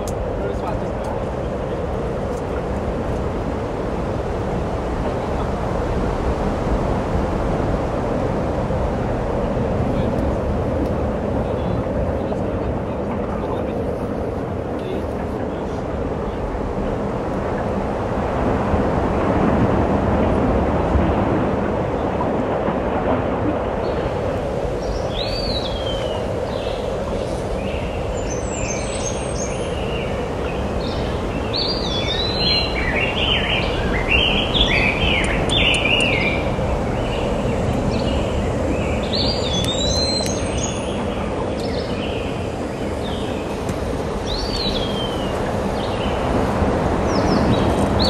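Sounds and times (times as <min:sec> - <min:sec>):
low rushing background noise: 0:00.0 - 0:48.0
bird chirping: 0:24.8 - 0:43.6, 0:44.2 - 0:46.2
small birds whistling: 0:24.8 - 0:43.6, 0:44.2 - 0:46.2.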